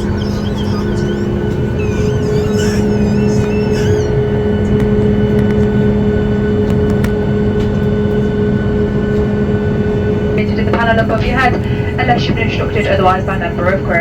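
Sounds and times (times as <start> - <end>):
aircraft cabin rushing noise: 0.0 - 4.2
constant low hum: 0.0 - 14.0.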